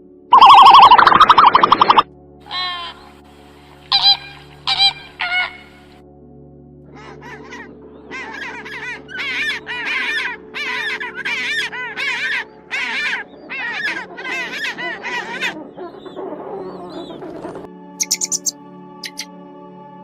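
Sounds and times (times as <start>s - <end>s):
farm birds calling loudly: 0.4s - 3.0s, 18.0s - 19.3s.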